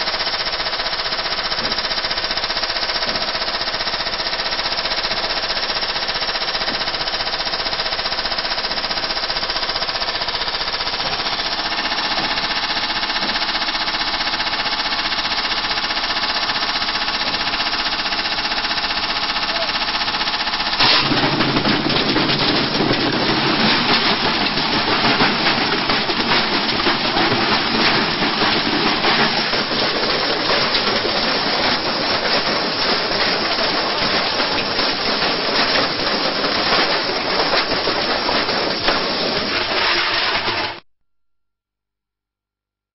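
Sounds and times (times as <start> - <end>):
washing machine rattling and banging: 20.2 - 40.8
washing machine motor whine: 22.6 - 40.8.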